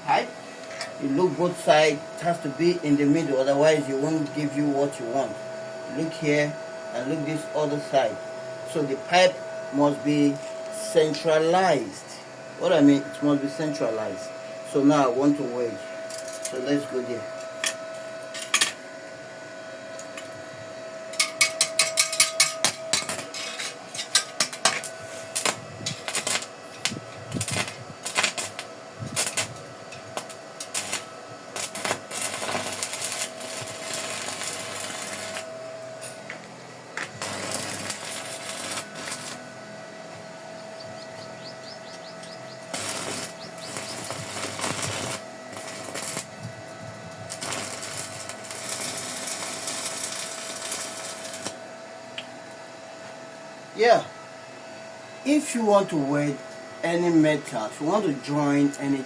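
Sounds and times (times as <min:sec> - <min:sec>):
steady whine: 0:00.0 - 0:59.0
welding arc crackling: 0:21.1 - 0:39.6, 0:41.8 - 0:52.3.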